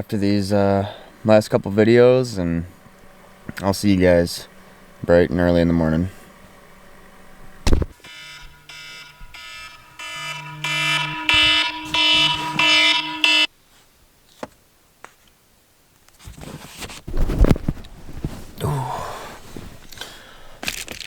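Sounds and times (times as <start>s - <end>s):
electronic alarm tone: 8.0s - 13.5s.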